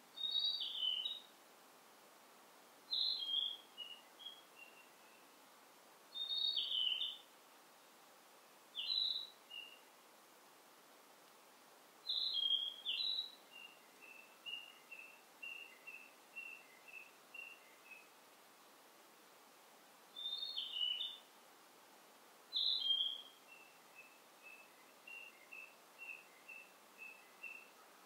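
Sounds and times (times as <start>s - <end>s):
faint forest ambience hiss: 0.0s - 28.0s
songbirds singing: 0.1s - 1.3s, 2.9s - 5.4s, 6.1s - 7.3s, 8.6s - 9.9s, 12.0s - 18.8s, 20.1s - 21.3s, 22.5s - 28.0s.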